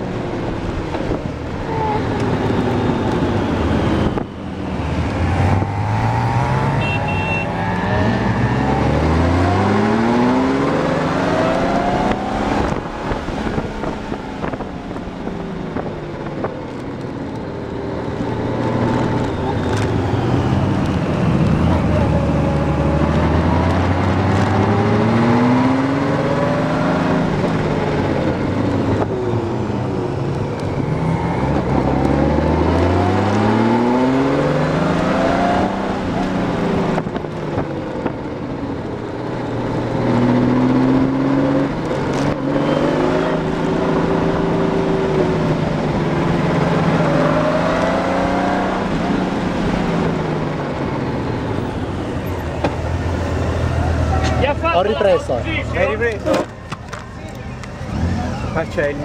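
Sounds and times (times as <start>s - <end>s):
motorcycle engine accelerating: 0.0s - 54.6s, 55.8s - 59.0s
wind noise: 7.9s - 17.2s.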